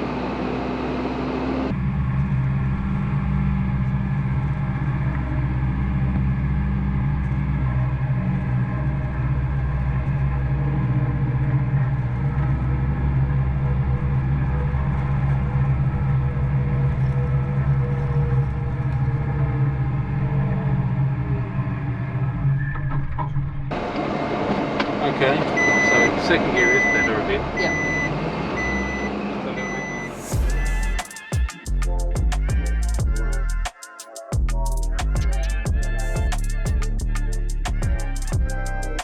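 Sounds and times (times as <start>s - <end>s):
diesel truck engine under load: 0.0s - 31.0s.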